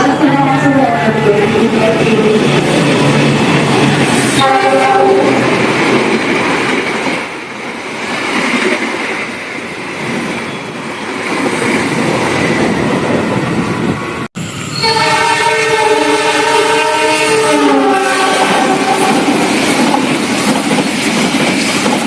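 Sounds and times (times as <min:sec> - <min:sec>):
train wheels rushing on rails: 0:00.0 - 0:22.0
train horn: 0:04.3 - 0:05.5, 0:14.7 - 0:19.3.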